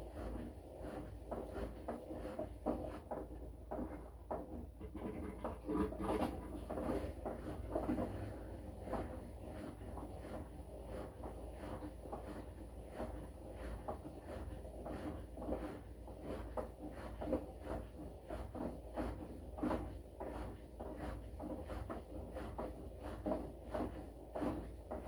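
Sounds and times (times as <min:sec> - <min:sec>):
washing machine low hum: 0:00.0 - 0:25.0.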